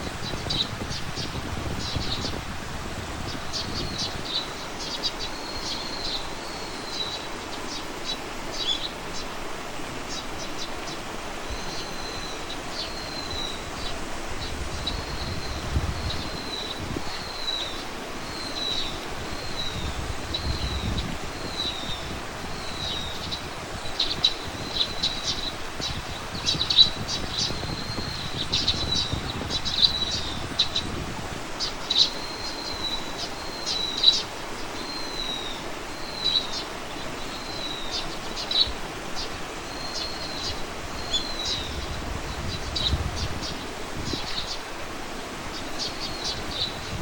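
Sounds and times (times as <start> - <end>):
faint wind rustle: 0.0 - 47.0
birds chirping sharply: 0.2 - 47.0.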